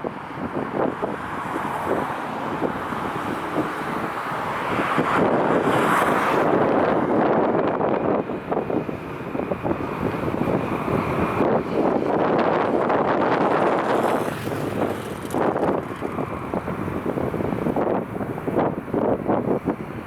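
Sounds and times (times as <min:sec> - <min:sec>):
gusty wind buffeting microphone: 0:00.0 - 0:20.0.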